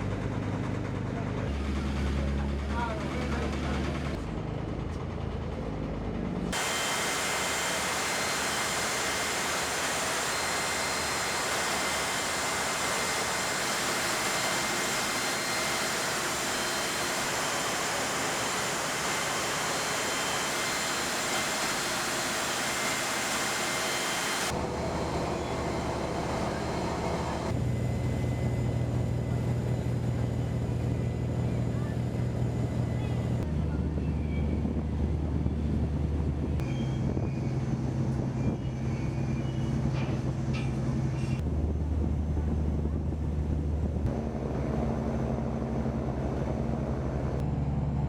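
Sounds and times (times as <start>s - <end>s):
low engine drone: 0.0s - 48.0s
boat rushing roar: 6.5s - 34.0s
faint high whines: 6.6s - 34.8s.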